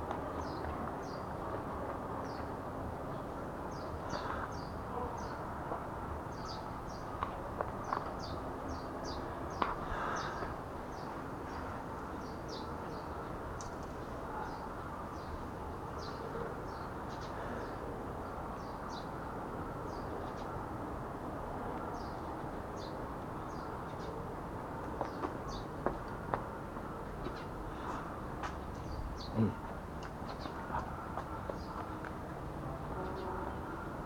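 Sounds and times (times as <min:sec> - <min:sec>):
low background noise: 0:00.0 - 0:34.0
small birds chirping: 0:27.2 - 0:32.0.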